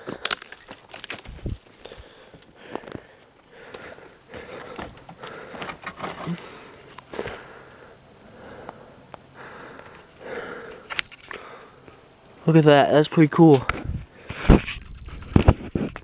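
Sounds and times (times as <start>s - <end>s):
twigs snapping: 0.0s - 2.0s.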